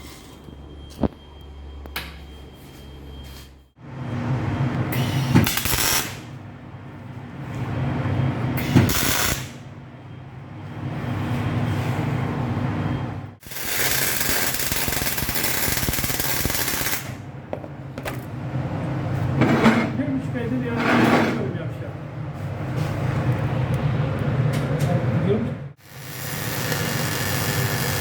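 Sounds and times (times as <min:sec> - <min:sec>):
arc welding: 0:05.4 - 0:06.3, 0:08.6 - 0:09.6, 0:13.4 - 0:17.2, 0:25.8 - 0:28.0.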